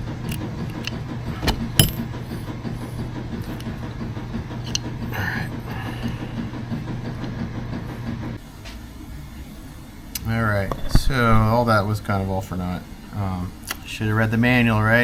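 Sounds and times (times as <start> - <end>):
steady low hum: 0.0 - 15.0
small metal parts clicking: 0.3 - 2.1.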